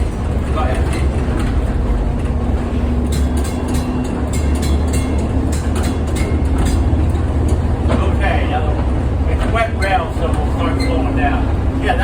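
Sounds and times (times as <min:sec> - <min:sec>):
streetcar wheels rumbling on rail: 0:00.0 - 0:12.0
sharp clicks and knocks: 0:00.8 - 0:08.1.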